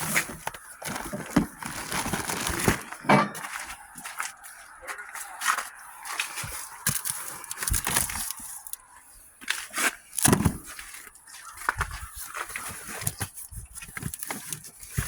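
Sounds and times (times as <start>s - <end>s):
cardboard packages knocking and scraping: 0.0s - 4.3s, 9.7s - 15.0s.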